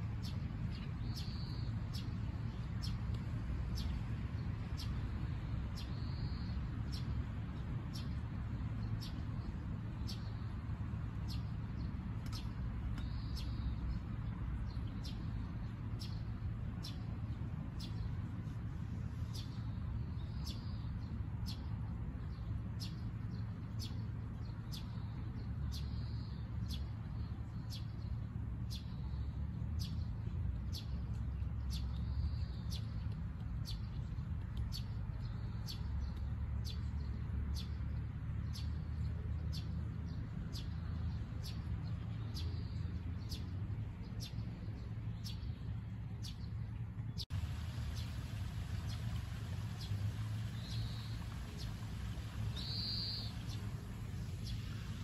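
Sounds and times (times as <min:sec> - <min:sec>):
steady low rumble: 0:00.0 - 0:55.0
birds chirping: 0:42.2 - 0:55.0.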